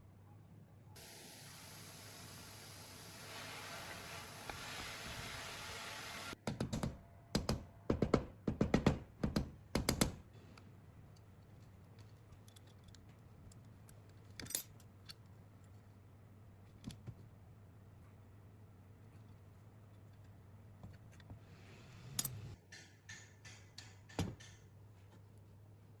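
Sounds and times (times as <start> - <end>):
small parts clicking and rattling: 11.1 - 15.8.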